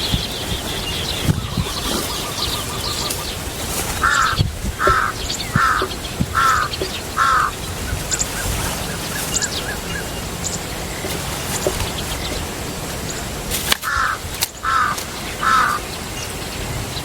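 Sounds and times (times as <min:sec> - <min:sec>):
faint high chirps of small birds: 0:00.0 - 0:17.0
bird calling short calls: 0:04.0 - 0:07.6.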